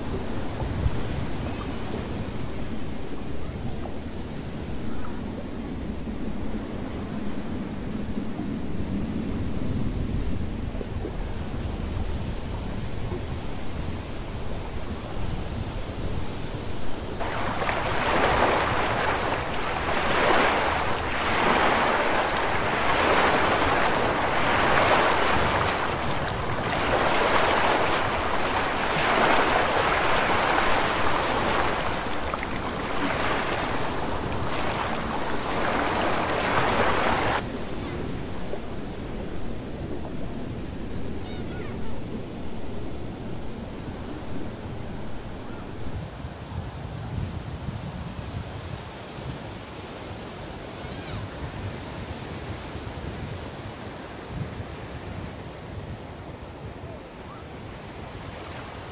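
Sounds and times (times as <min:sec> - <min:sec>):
wind buffeting microphone: 0:00.0 - 0:49.7
water rushing in boat wake: 0:07.4 - 0:46.4, 0:57.6 - 0:58.9.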